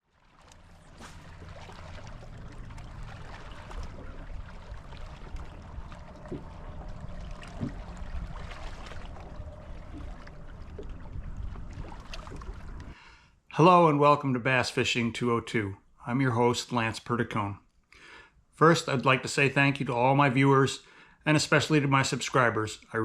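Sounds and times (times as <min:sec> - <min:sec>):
water lapping and splashing: 0:00.0 - 0:13.0
steady low rumble: 0:00.4 - 0:13.0.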